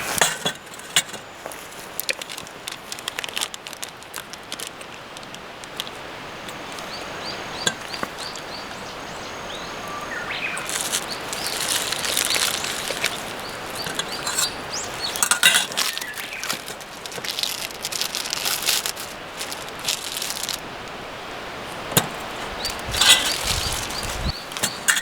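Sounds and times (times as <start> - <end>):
outdoor background noise: 0.0 - 25.0
sharp clicks and crackles: 0.2 - 6.0, 10.6 - 20.6
small bird chirping: 6.4 - 16.7, 22.5 - 25.0.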